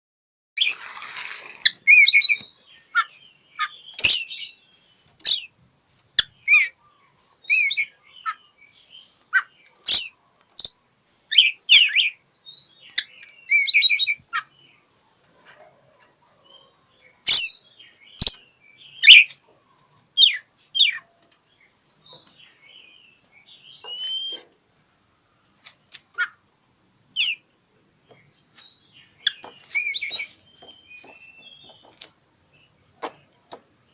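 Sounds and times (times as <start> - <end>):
bird singing whistled phrases: 1.8 - 4.6, 6.2 - 8.4, 9.4 - 14.2, 18.2 - 19.3, 23.6 - 24.4, 27.2 - 27.4, 29.2 - 31.8.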